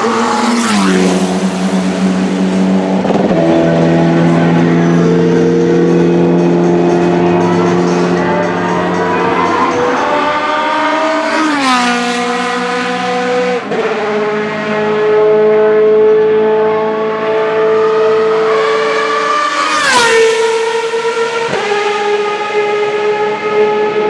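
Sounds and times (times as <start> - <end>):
engine holding high pitch: 0.0 - 13.7
racing cars passing at high revs: 0.0 - 24.0.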